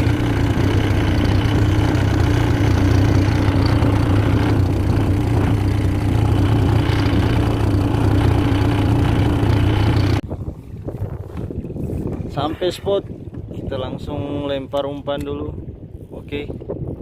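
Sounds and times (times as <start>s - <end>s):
boat engine droning: 0.0s - 10.2s.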